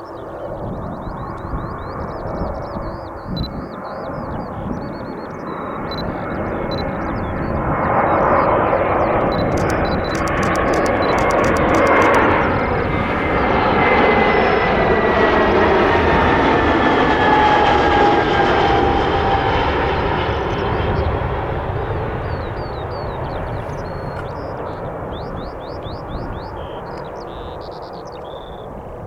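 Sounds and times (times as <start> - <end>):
faint jet engine whine: 0.0 - 29.0
airliner jet rush: 6.1 - 25.1.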